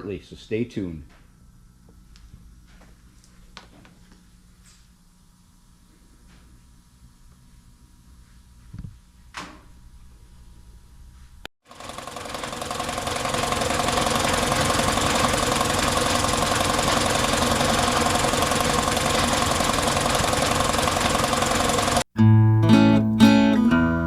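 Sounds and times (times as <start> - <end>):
air compressor running: 11.6 - 22.1.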